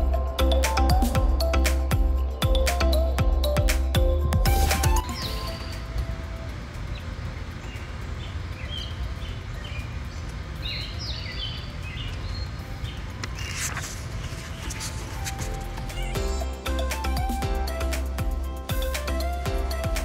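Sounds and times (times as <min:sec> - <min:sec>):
small birds chirping: 0:04.6 - 0:20.0
page being turned: 0:13.2 - 0:16.2.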